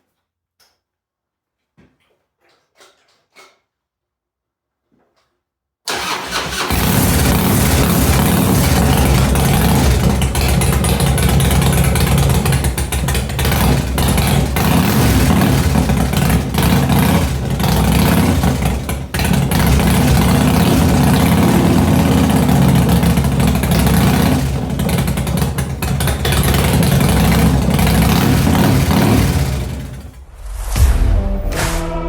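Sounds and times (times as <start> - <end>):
motorcycle engine running: 6.5 - 30.2.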